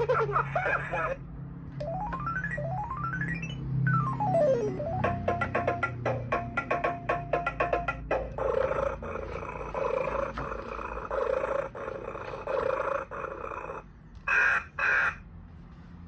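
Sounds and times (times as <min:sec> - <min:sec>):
animal sound from toy speaker: 0:00.0 - 0:01.2.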